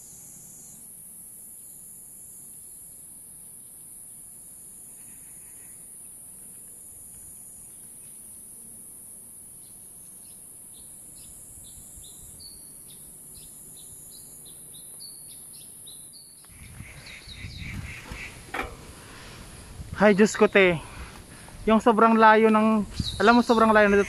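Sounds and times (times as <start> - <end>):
steady high hiss: 0.0 - 24.0
bird chirping: 9.6 - 24.0.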